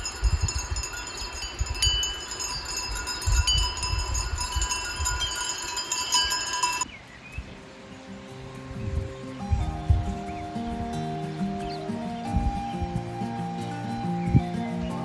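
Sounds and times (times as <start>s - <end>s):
sheep bells clanking: 0.0s - 6.9s.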